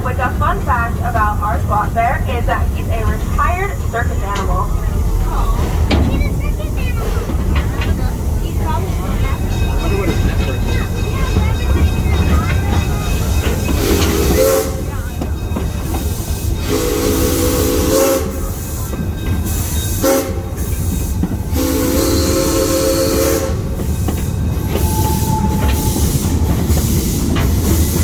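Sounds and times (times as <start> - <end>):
train running rumble: 0.0 - 28.0
train whistle blasts: 13.8 - 14.9, 16.6 - 18.8, 19.6 - 20.9, 21.5 - 23.7, 24.7 - 26.3.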